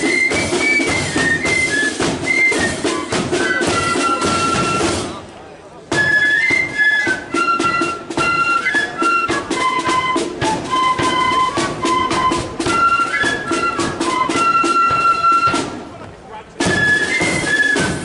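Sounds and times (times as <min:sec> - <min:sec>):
flute melody: 0:00.0 - 0:05.2, 0:05.9 - 0:16.0, 0:16.6 - 0:18.0
steady drum beats: 0:00.0 - 0:18.0.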